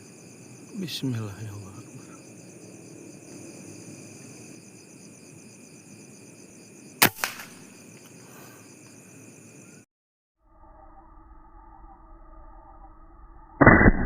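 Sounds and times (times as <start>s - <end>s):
crickets and insects chirping: 0.0s - 13.6s
gunshot: 7.0s - 7.6s, 13.6s - 14.0s
small crack: 7.0s - 8.1s.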